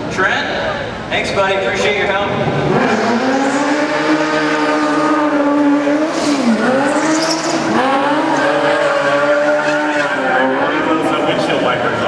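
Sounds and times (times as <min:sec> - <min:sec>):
motorcycle engine revving high: 0:02.4 - 0:11.9.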